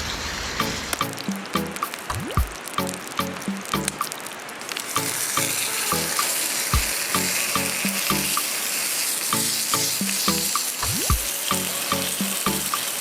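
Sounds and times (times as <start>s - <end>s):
background music with beat: 0.6s - 4.2s, 5.0s - 8.4s, 9.3s - 12.9s
food sizzling in a pan: 2.8s - 13.0s.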